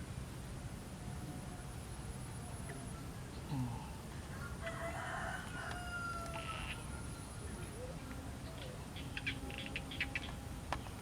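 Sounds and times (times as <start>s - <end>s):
rooster crowing: 4.4s - 7.0s.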